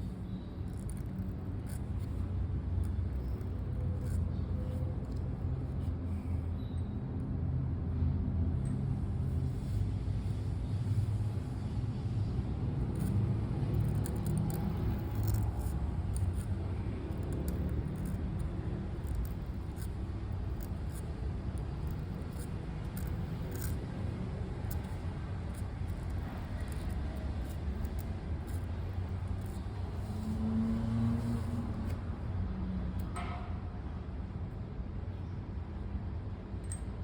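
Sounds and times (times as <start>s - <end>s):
low background rumble: 0.0s - 32.4s
pen nib scratching paper: 0.7s - 6.4s, 12.3s - 32.0s.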